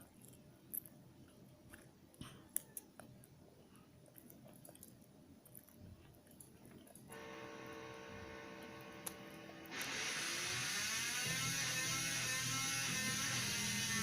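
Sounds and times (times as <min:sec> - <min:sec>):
faint chewing: 0:00.0 - 0:09.8
steady hum with tones: 0:00.0 - 0:14.0.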